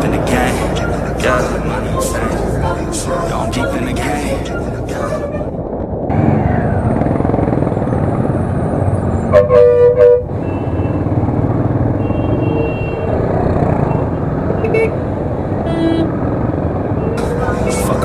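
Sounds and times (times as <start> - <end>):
road traffic rumble: 0.0 - 18.0
vehicle horn honking: 9.3 - 11.0, 12.0 - 13.2, 14.6 - 15.0, 15.6 - 16.1.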